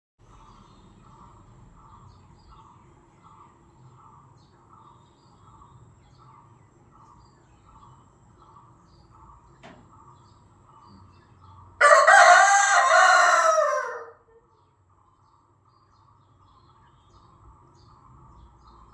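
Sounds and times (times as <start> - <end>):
faint regular chirping: 0.3 - 11.8
rooster crowing: 11.8 - 14.4.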